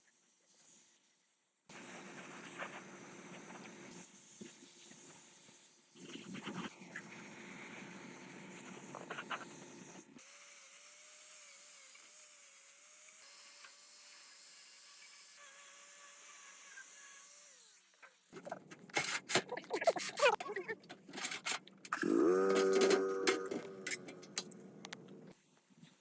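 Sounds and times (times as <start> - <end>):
rubbing and scraping metal parts: 18.0 - 25.3.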